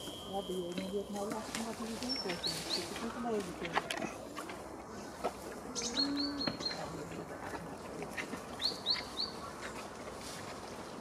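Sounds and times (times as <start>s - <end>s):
small songbird chirping: 1.9s - 3.2s, 5.7s - 7.1s, 8.6s - 9.6s.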